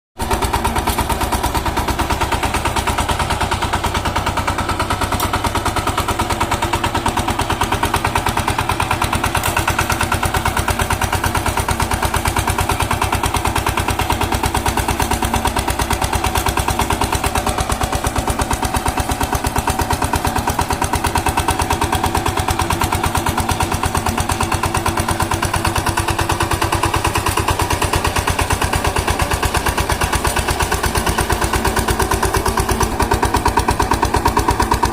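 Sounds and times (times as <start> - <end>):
power tiller engine chugging: 0.2 - 34.9.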